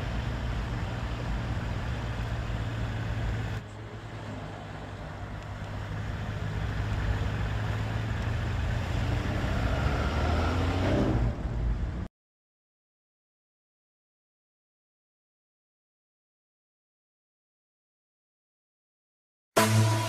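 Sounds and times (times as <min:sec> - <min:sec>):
car engine running: 0:00.0 - 0:10.7.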